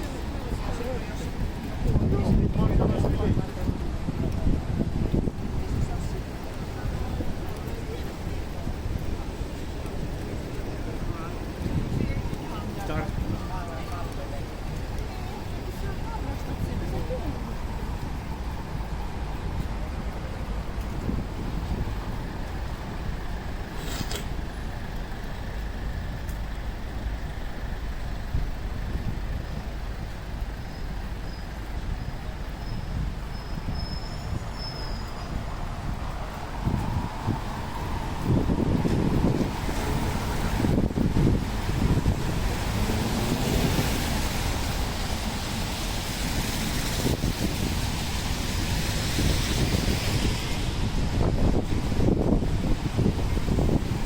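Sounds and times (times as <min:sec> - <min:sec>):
falling rain: 0:00.0 - 0:54.0
traffic rumble: 0:00.0 - 0:54.0
brief hiss: 0:23.7 - 0:24.4.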